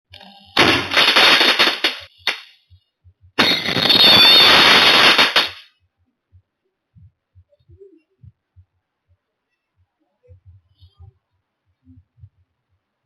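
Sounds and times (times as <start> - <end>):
firecrackers crackling: 0.6 - 2.5, 3.4 - 5.7.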